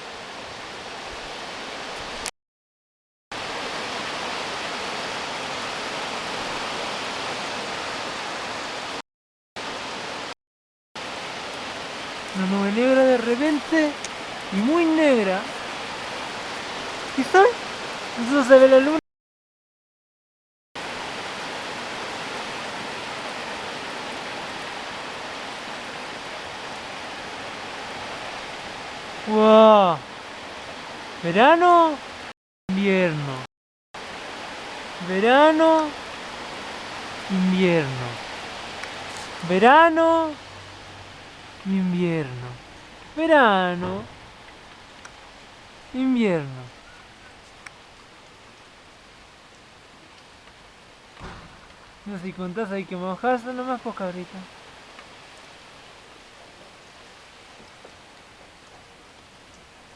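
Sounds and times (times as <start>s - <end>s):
heavy rain pouring: 0.0s - 2.3s, 3.3s - 9.0s, 9.6s - 10.4s, 11.0s - 19.0s, 20.8s - 59.9s
heavy rain hissing: 34.0s - 59.9s.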